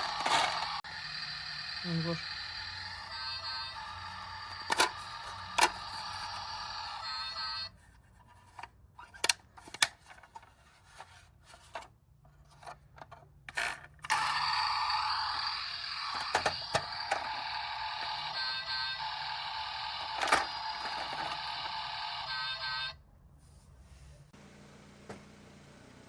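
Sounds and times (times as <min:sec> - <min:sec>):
toy cars cracking under wheel: 0:00.0 - 0:00.8, 0:13.6 - 0:17.5, 0:20.0 - 0:21.6.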